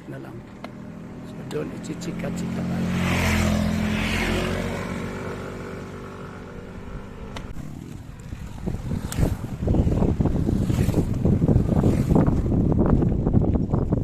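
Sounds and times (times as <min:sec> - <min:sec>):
vehicle engine passing: 0:00.0 - 0:12.8
wind buffeting microphone: 0:02.8 - 0:14.0.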